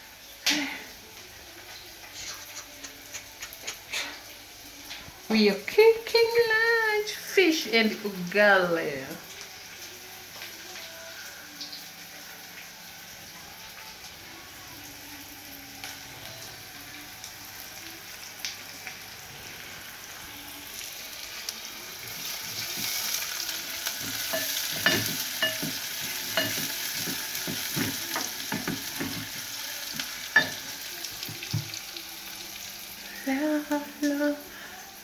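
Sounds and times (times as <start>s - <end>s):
food sizzling in hot oil: 0.0s - 35.0s.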